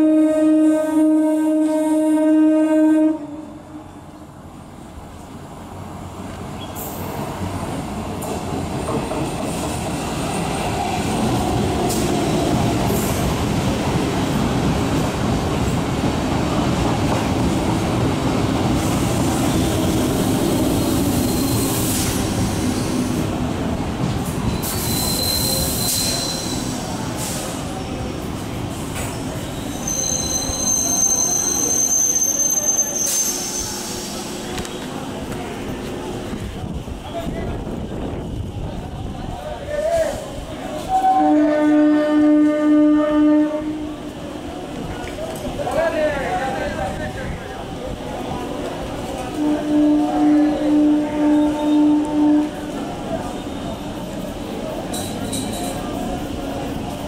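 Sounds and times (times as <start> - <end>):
train wheels rattling on rails: 6.2 - 41.2, 43.8 - 57.0
high metallic squeals: 20.6 - 22.9, 24.5 - 26.8, 29.4 - 34.2.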